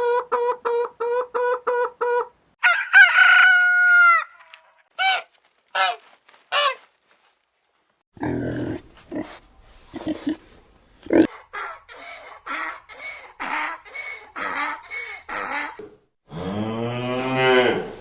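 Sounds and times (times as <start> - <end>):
pig grunting: 8.2 - 10.4
pig squealing: 11.1 - 15.9.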